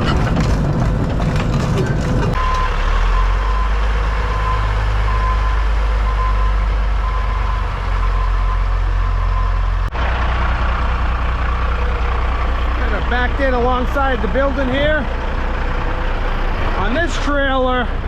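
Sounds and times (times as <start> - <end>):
diesel truck engine running: 0.0 - 18.0
reverse alarm beeping: 2.4 - 9.7.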